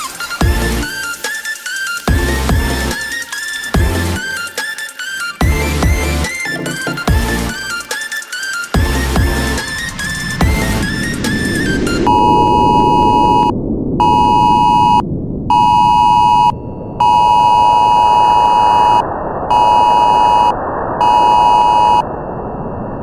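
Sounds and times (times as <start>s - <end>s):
electronic beep tone: 11.7s - 22.1s.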